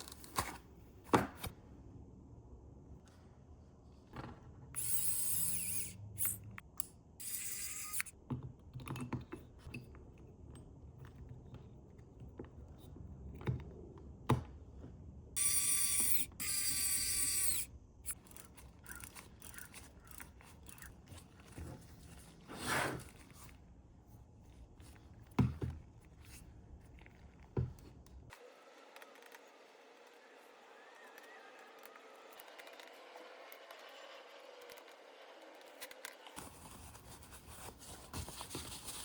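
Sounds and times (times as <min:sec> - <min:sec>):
small parts clicking and scraping: 0:04.8 - 0:08.2, 0:15.4 - 0:21.6.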